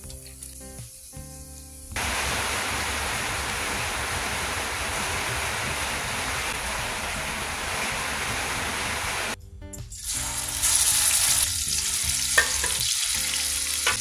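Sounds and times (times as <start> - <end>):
heavy rain hiss: 2.0 - 9.4.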